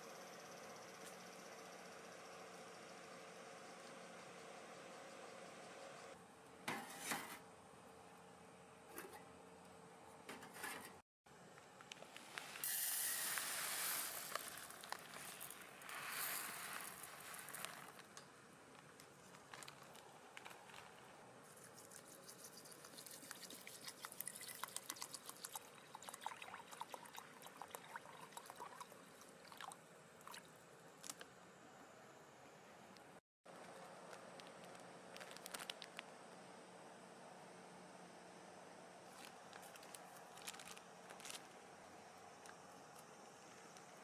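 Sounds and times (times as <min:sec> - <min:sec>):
water pouring and splashing: 0:12.4 - 0:17.8, 0:22.3 - 0:30.5
small crackles and ticks: 0:14.2 - 0:27.0, 0:31.0 - 0:31.3, 0:33.0 - 0:36.1, 0:39.1 - 0:41.5.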